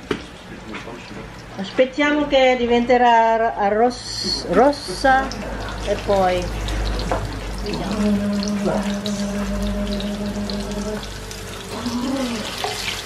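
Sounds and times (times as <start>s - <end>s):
steady pitched tone: 3.8s - 13.0s
cutlets sizzling in hot oil: 3.9s - 13.0s
short wavering tone: 7.6s - 13.0s.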